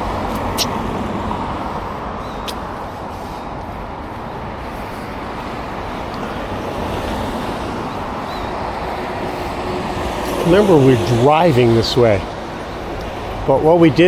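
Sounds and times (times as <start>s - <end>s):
bicycle road noise: 0.0s - 14.0s.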